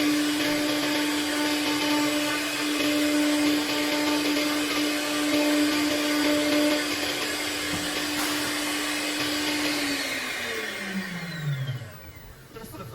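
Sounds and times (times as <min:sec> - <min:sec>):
saw cutting through wood: 0:00.0 - 0:12.2
milling spindle whine: 0:00.0 - 0:12.9.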